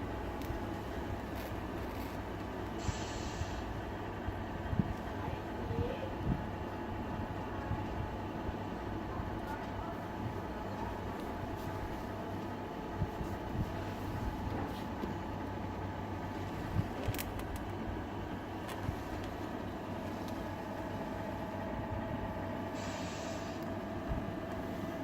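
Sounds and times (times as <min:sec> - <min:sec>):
model truck mechanical hum: 0:07.2 - 0:25.0.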